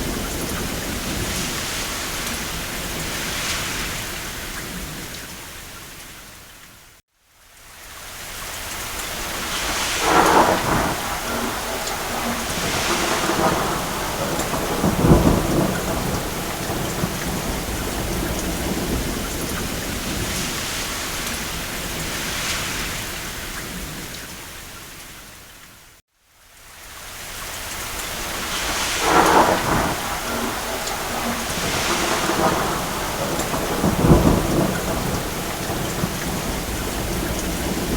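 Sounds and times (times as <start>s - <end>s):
thunder rolling: 0.0s - 5.2s, 9.2s - 24.2s, 28.2s - 37.9s
heavy rain: 0.0s - 37.9s.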